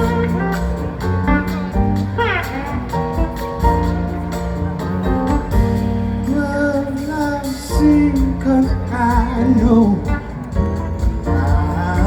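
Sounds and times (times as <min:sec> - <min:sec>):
bending lead melody: 0:00.0 - 0:12.0
live blues-rock band playing: 0:00.0 - 0:12.0.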